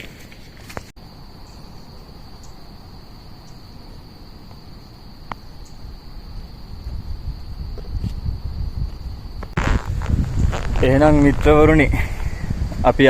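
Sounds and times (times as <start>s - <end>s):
insect high steady tone: 1.0s - 13.0s
low rumble: 9.5s - 12.6s.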